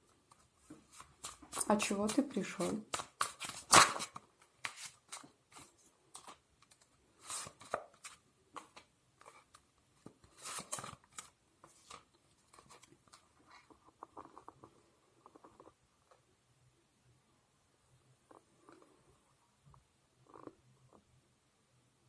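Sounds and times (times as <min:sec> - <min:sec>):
cards shuffling: 0:00.3 - 0:13.2.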